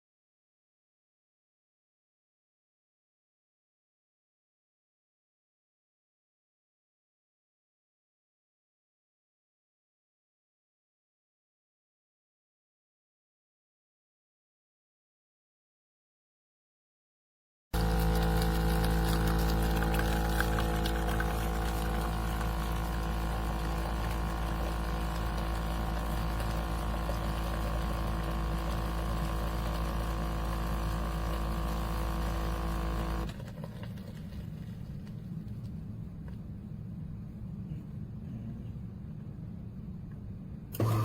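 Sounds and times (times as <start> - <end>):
espresso machine pump humming: 17.8 - 33.4, 40.8 - 41.0.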